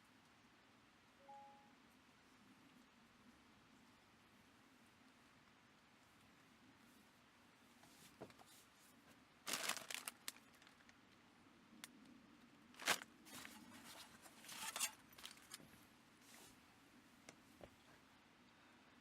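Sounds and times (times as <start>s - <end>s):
scratchy crinkling rustles: 6.8s - 11.2s, 12.7s - 16.6s.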